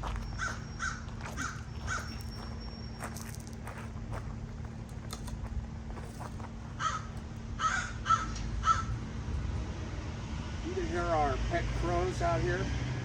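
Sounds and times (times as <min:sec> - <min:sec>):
steady low hum: 0:00.0 - 0:13.0
crows cawing: 0:00.3 - 0:02.2, 0:06.7 - 0:09.0.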